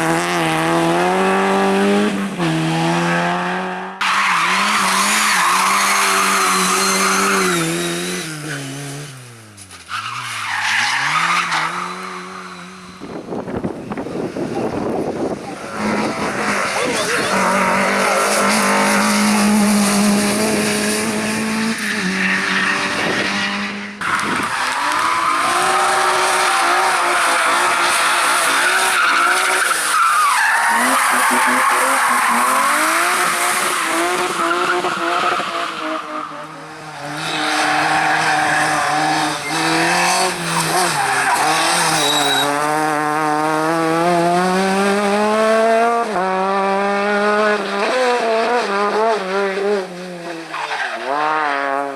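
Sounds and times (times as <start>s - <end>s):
car engines revving hard: 0.0s - 51.9s
tyre squeal: 37.2s - 42.8s.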